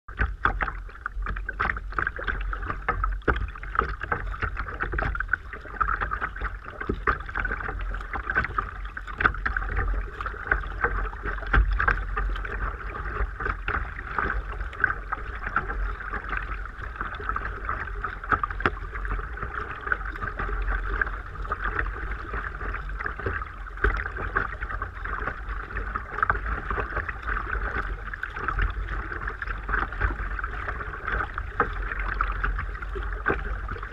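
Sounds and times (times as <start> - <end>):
constant low rumble: 0.0 - 33.9
paddle strokes: 0.1 - 33.9
water splashing against kayak hull: 0.1 - 33.9.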